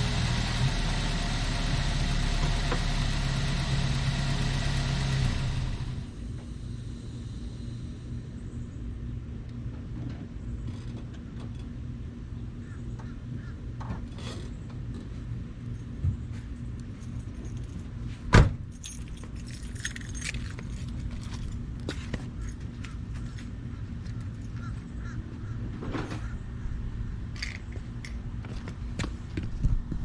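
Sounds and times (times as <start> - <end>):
steady low hum: 0.6 - 30.0
keys jangling: 16.9 - 18.0, 18.7 - 21.6.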